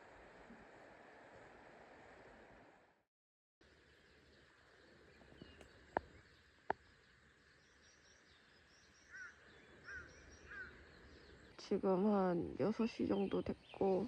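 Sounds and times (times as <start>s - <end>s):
outdoor hiss: 0.0s - 3.0s
birds chirping: 3.6s - 14.0s.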